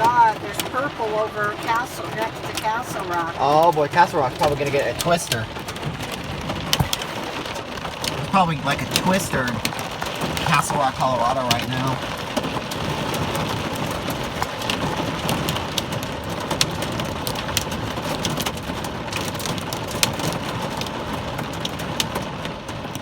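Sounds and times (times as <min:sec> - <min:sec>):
heavy rain on car roof: 0:00.0 - 0:23.0
raindrop ticks on bodywork: 0:00.0 - 0:23.0.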